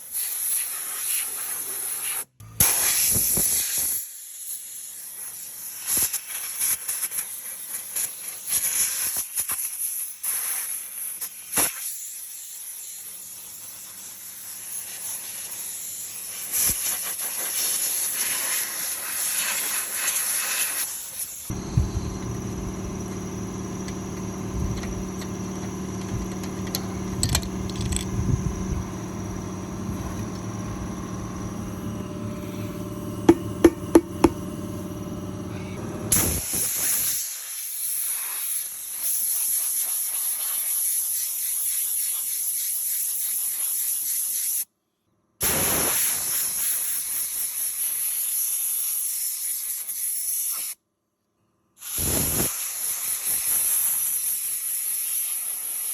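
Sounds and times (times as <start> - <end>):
air blow gun hissing: 0.1 - 4.9, 14.8 - 41.2, 45.4 - 50.8, 51.8 - 55.9
steady mechanical hum: 21.5 - 36.4
sharp clicks: 23.8 - 28.4.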